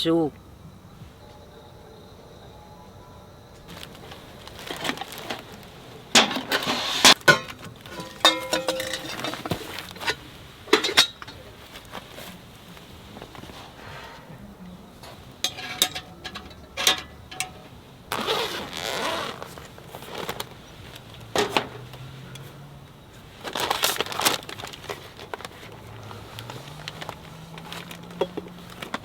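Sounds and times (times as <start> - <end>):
rustling: 3.6 - 29.0
cooking gear clinking and knocking: 3.7 - 29.0.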